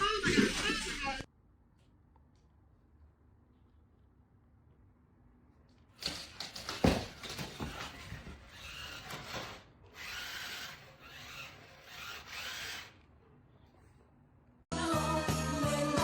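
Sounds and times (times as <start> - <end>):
music: 14.7 - 16.0.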